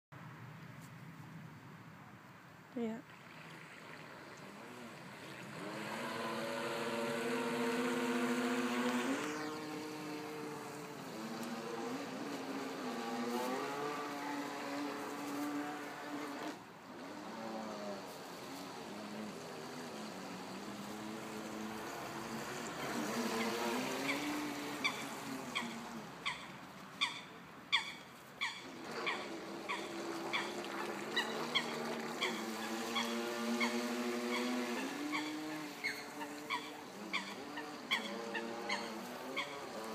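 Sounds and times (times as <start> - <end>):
electric motor whining: 4.4 - 25.5.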